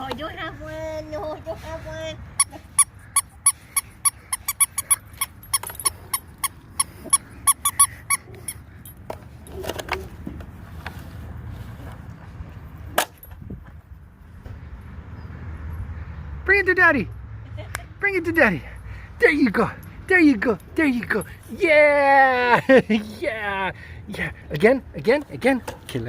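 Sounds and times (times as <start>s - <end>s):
dog ball squeaking: 2.4s - 8.9s.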